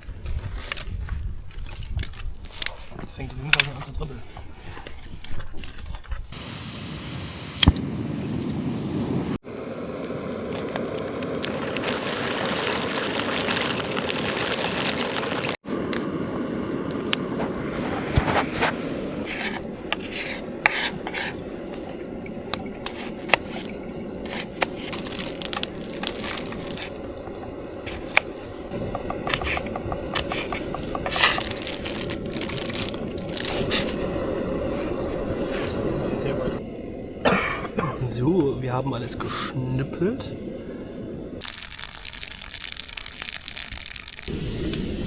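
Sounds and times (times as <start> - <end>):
steady hiss: 19.3 - 45.0.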